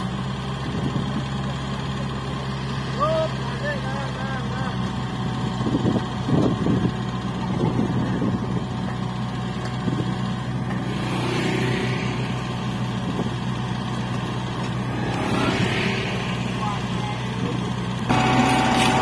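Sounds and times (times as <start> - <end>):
machine engine drone: 0.0 - 19.0
motorbikes riding past: 10.8 - 13.5, 14.1 - 19.0.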